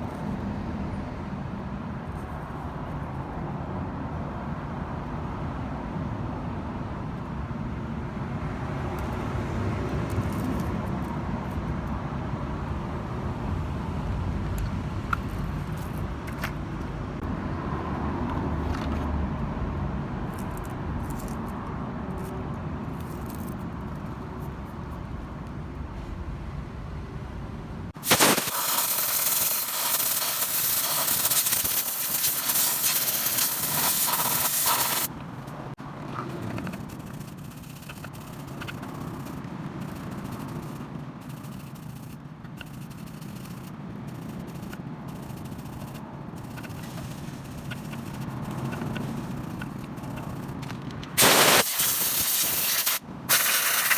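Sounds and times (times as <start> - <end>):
loud steady hiss: 28.0 - 35.1, 51.2 - 53.9
car engine rumbling: 33.3 - 51.6.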